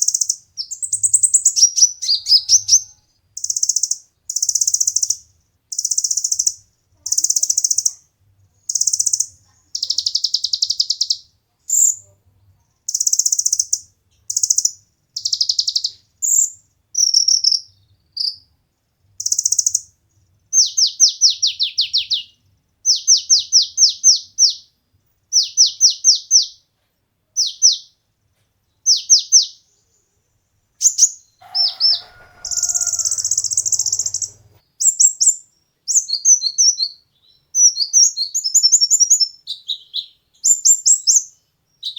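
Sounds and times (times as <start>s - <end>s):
sunbird singing: 0.0s - 8.0s, 8.6s - 12.1s, 30.8s - 41.9s.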